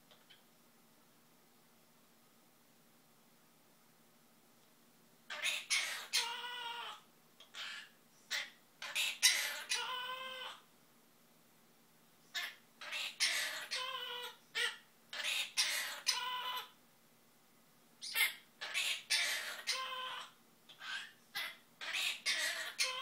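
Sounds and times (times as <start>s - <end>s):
parrot warbling: 5.3s - 10.7s, 12.3s - 16.8s, 18.0s - 23.0s.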